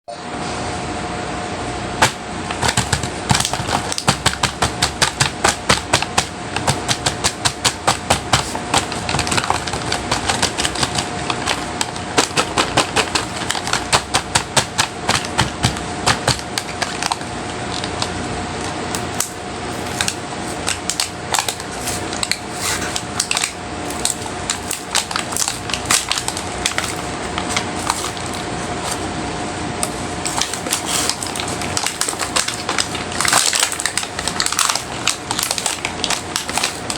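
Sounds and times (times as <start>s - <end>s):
plastic cases clicking and tapping: 2.0s - 17.2s.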